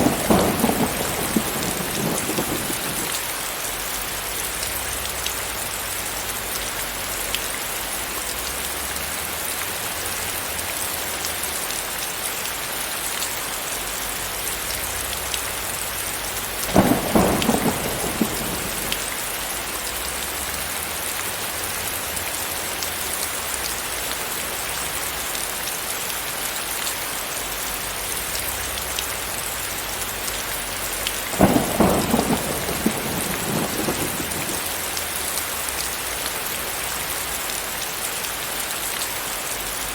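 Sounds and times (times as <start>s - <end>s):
thunder rumbling: 0.0s - 3.4s, 16.4s - 20.4s, 31.3s - 35.4s
steady rain falling: 0.0s - 39.9s.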